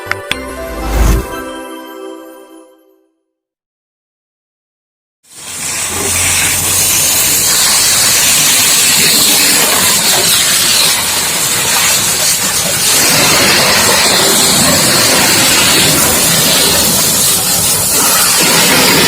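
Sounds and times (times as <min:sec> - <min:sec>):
high-pressure water jet hissing: 0:05.3 - 0:19.0.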